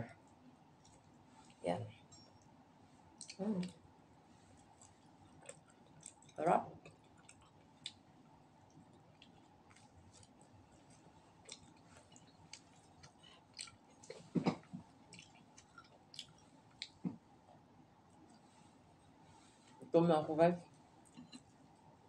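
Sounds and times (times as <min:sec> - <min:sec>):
chewing with wet mouth clicks: 0:03.2 - 0:03.8, 0:04.6 - 0:08.0, 0:08.7 - 0:17.0.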